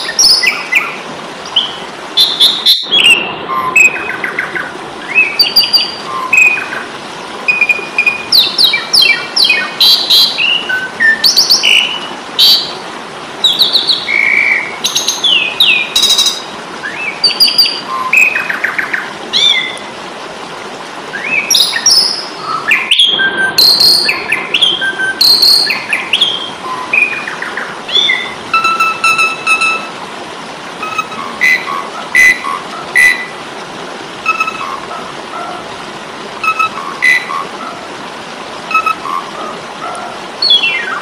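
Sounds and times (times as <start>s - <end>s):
starling chirps and whistles: 0.0s - 1.0s, 1.6s - 6.8s, 7.5s - 12.7s, 13.4s - 18.8s, 21.2s - 29.9s, 30.8s - 33.3s, 34.2s - 35.0s, 36.4s - 37.5s, 38.7s - 39.5s.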